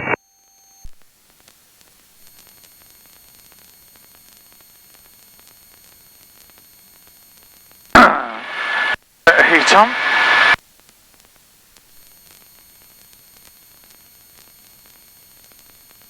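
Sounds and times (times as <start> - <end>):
loud radio burst: 8.0 - 10.6
radio static hiss: 8.0 - 10.6.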